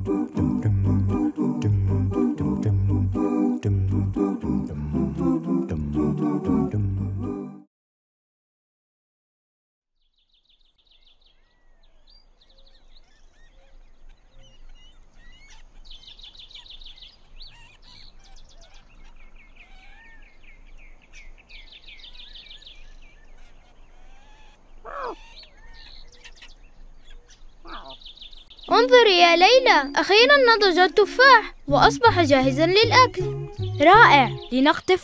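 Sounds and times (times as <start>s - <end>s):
birds chirping and trilling: 10.0s - 35.0s.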